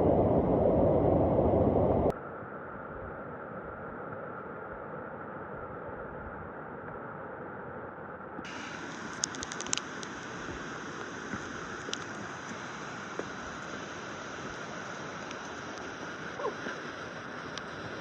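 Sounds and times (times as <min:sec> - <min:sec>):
waterfall rushing: 0:08.5 - 0:18.0
small clicks: 0:09.1 - 0:10.2.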